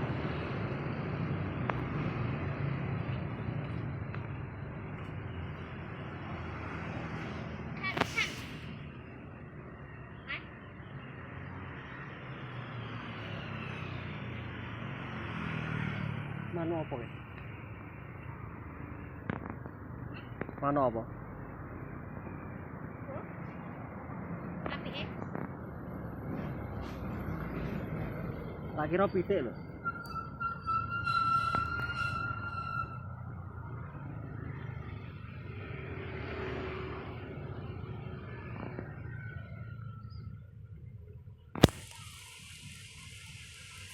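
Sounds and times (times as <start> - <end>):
whistle-like animal call: 29.8 - 33.2.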